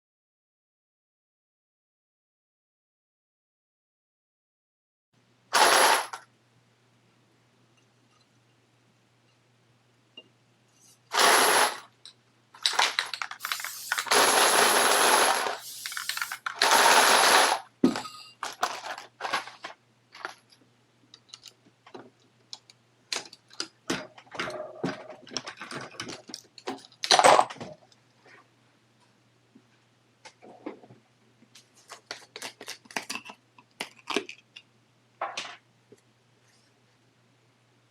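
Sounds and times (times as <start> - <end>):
reloading press clicks and clatter: 12.6 - 17.6.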